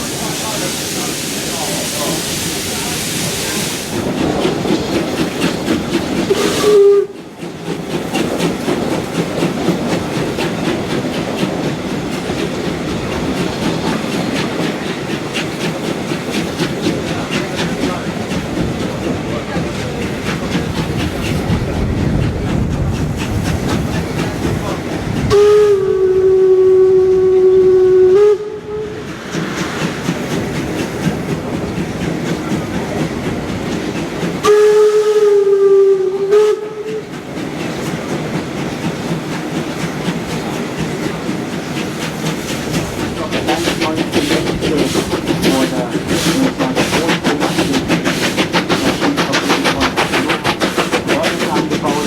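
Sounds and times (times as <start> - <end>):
train wheels rattling: 0.0 - 28.0, 28.6 - 52.0
steam whistle blasts: 6.3 - 7.2, 25.3 - 29.1, 34.4 - 37.1.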